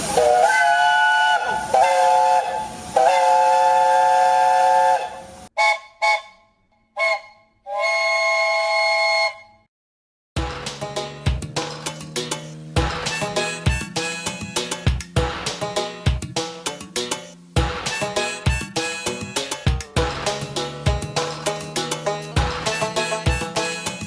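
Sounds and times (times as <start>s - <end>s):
steam hissing: 0.0s - 5.5s, 11.9s - 16.0s, 16.7s - 24.0s
steam locomotive chime whistle: 0.0s - 6.4s, 7.0s - 9.6s, 13.1s - 15.0s, 17.9s - 19.7s, 21.3s - 24.0s.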